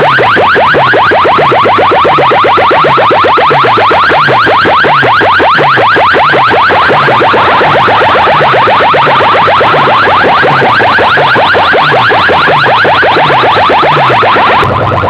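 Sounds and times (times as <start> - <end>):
electronic siren-like chirps: 0.0 - 15.0
repeating low bass figure: 5.4 - 15.0.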